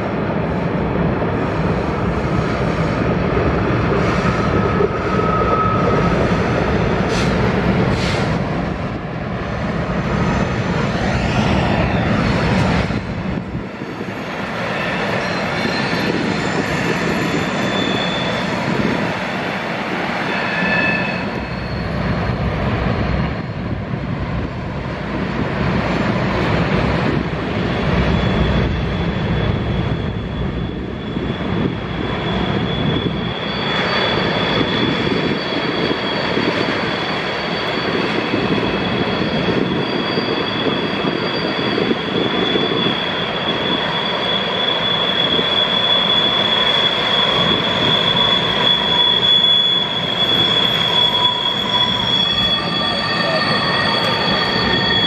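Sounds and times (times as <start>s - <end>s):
train wheels rumbling on rails: 0.0s - 55.0s
high-pitched wheel squeal: 4.1s - 7.4s, 14.4s - 19.5s, 20.1s - 22.5s, 27.6s - 55.0s.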